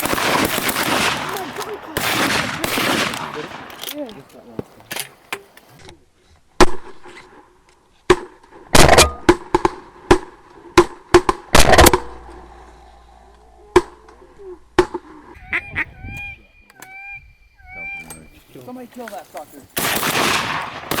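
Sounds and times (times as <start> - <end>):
shotguns firing: 0.0 - 5.3, 8.7 - 12.4, 19.8 - 21.0
duck quacking calls: 15.0 - 18.3.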